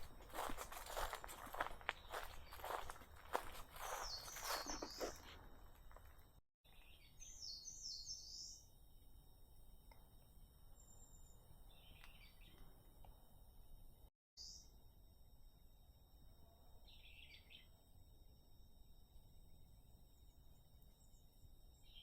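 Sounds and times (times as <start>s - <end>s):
songbird chirping: 0.0s - 6.0s, 6.7s - 8.7s, 10.7s - 13.2s
footsteps on forest path: 0.0s - 6.4s.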